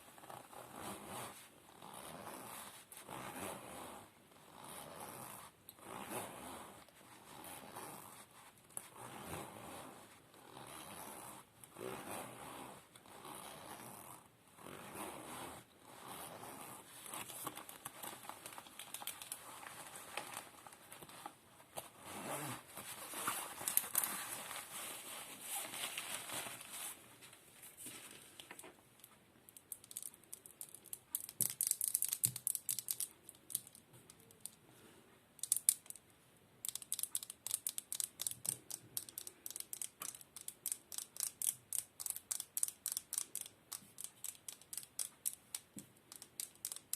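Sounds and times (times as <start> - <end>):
crinkling and rustling: 16.8 - 34.6.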